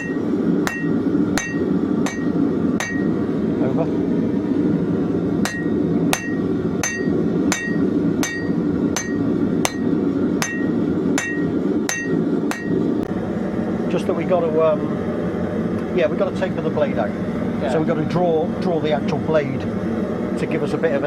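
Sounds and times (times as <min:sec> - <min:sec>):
hammer ringing on anvil: 0:00.0 - 0:03.2, 0:05.4 - 0:12.8
steady rushing noise: 0:00.0 - 0:21.0.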